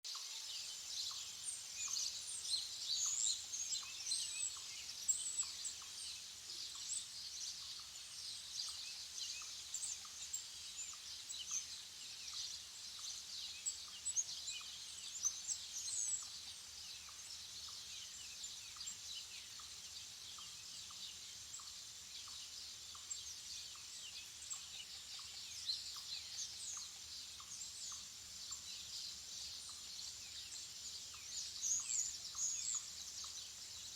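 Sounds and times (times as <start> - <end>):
songbirds chirping: 0.0 - 33.9.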